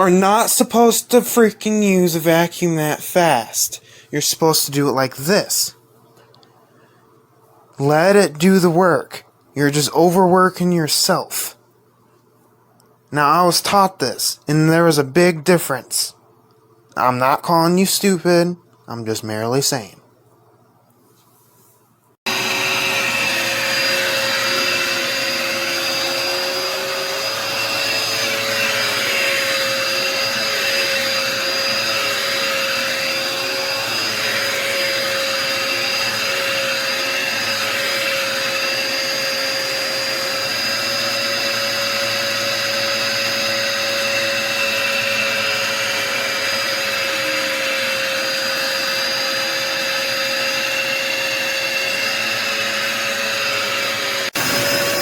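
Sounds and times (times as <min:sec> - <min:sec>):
vacuum cleaner motor whine: 0:22.3 - 0:55.0.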